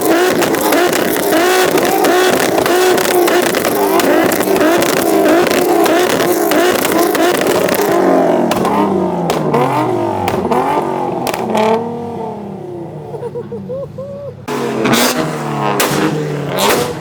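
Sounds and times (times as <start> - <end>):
car engine revving: 0.0 - 13.3, 14.4 - 17.0.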